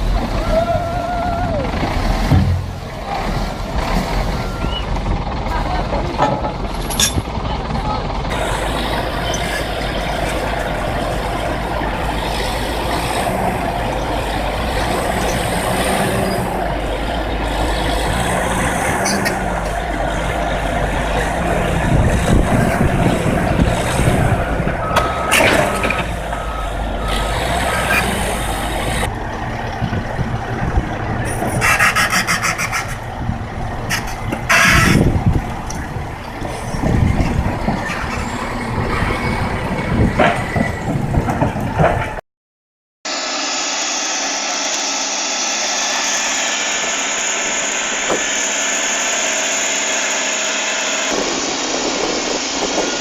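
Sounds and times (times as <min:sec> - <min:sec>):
diesel construction machinery running: 0:00.0 - 0:42.2, 0:43.1 - 0:53.0
loud knocks: 0:02.2 - 0:03.0
reversing alarm beeping: 0:24.8 - 0:28.1.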